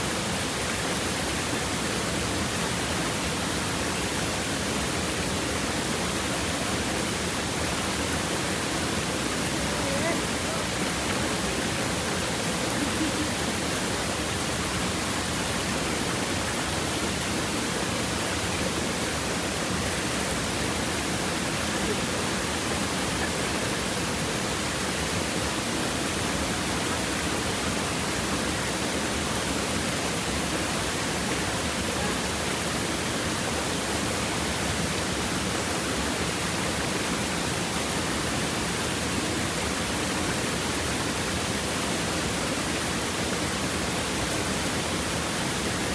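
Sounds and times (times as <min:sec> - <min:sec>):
stream babbling over stones: 0:00.0 - 0:45.9.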